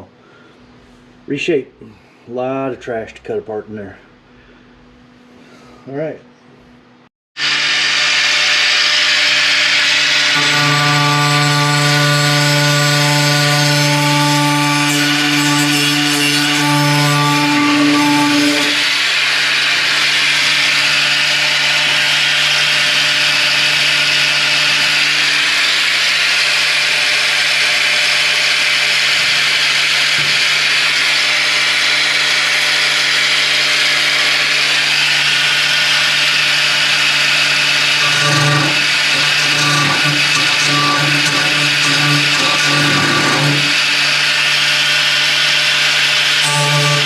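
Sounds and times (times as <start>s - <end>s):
power tool motor whine: 7.4s - 47.0s.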